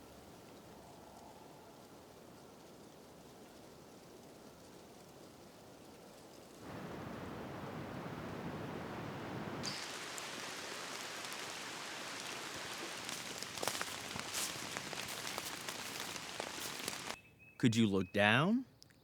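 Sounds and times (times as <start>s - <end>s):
steady rain hiss: 0.0s - 17.2s
individual raindrops striking: 6.6s - 17.2s.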